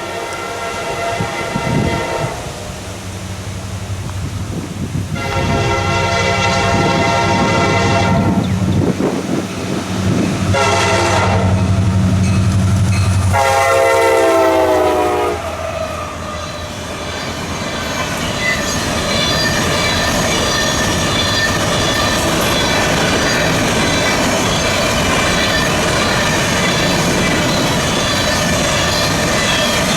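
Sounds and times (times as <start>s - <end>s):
locomotive horn blasts: 0.0s - 2.7s, 5.1s - 8.7s, 10.5s - 12.0s, 13.3s - 16.5s
locomotive engine rumble: 0.0s - 29.9s.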